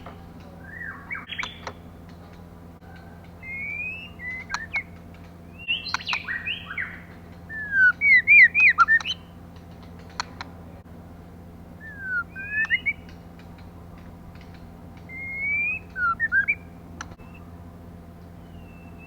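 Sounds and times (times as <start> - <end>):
bird clicking notes: 0.0 - 10.6, 11.8 - 17.4
bird whistling: 0.6 - 1.8, 3.0 - 9.4, 11.8 - 13.2, 15.0 - 17.5, 18.4 - 19.0.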